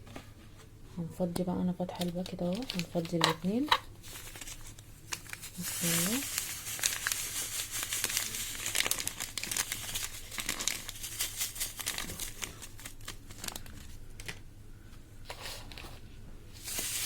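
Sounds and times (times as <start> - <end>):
plastic bags crinkling: 2.0 - 14.4, 16.6 - 17.0.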